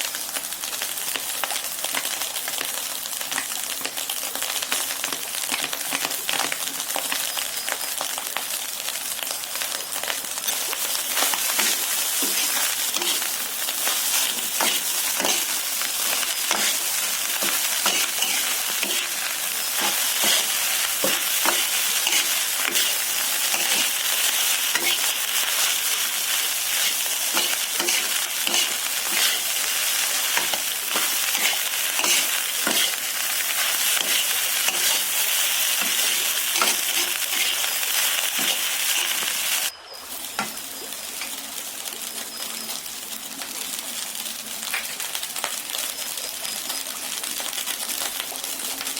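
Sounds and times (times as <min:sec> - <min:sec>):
food sizzling in a hot pan: 0:00.0 - 0:48.9
spatula scraping a pan: 0:10.5 - 0:26.0, 0:26.7 - 0:39.6.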